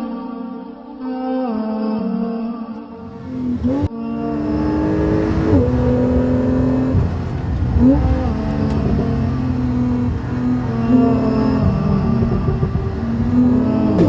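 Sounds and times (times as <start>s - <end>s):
car engine accelerating: 3.0s - 14.0s.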